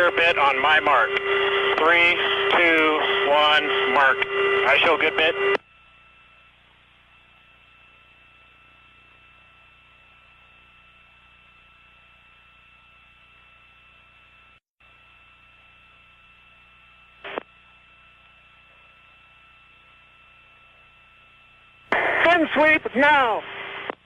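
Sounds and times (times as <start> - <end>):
burst of radio noise: 0.0 - 5.6, 21.9 - 24.0
radio channel hiss: 0.0 - 5.6, 17.0 - 24.0
steady radio tones: 0.0 - 11.9, 15.2 - 24.0.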